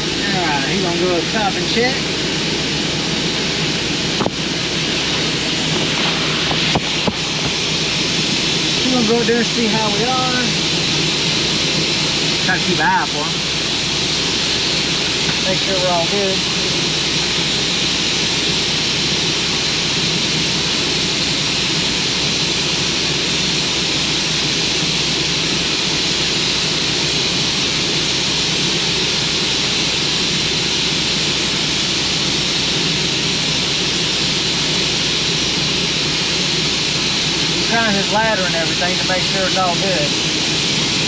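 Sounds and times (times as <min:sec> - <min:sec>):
mechanical roar with hiss: 0:00.0 - 0:41.0.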